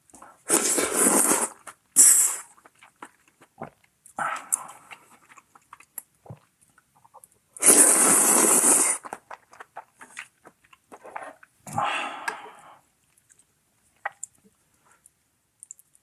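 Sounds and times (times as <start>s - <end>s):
loud noodle slurp: 0.5s - 2.6s, 7.6s - 9.3s
wet chewing and crunching: 1.6s - 7.7s, 8.6s - 11.6s, 13.0s - 14.5s.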